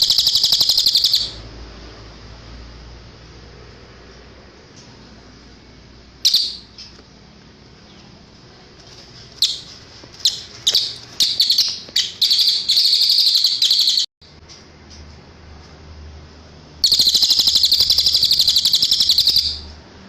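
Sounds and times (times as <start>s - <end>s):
songbird calling and trilling: 0.0s - 1.4s, 6.2s - 7.0s, 9.4s - 14.1s, 16.8s - 19.7s.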